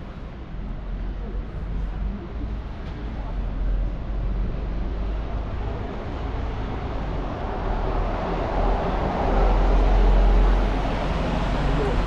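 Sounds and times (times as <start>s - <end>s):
city street ambience: 0.0s - 12.0s.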